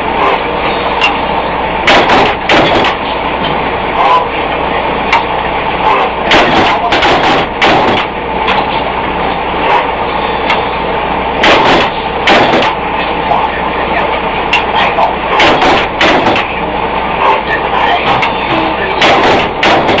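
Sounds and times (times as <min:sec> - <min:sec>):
loud machinery noise: 0:00.0 - 0:20.0
sharp knocks: 0:01.9 - 0:03.0, 0:06.3 - 0:08.1, 0:11.4 - 0:12.8, 0:15.4 - 0:16.5, 0:19.0 - 0:20.0.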